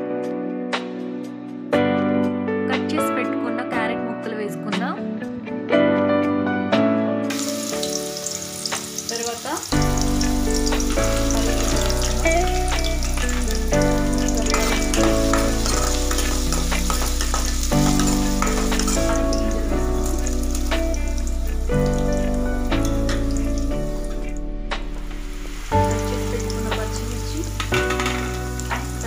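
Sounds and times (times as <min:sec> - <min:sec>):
instrumental music: 0:00.0 - 0:29.0
food sizzling in hot oil: 0:07.3 - 0:29.0.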